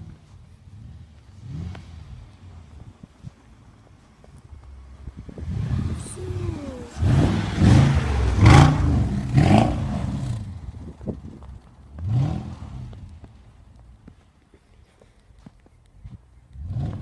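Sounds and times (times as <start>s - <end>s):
car engine revving: 0.7s - 2.6s, 5.3s - 10.7s, 12.0s - 13.2s, 16.6s - 17.0s.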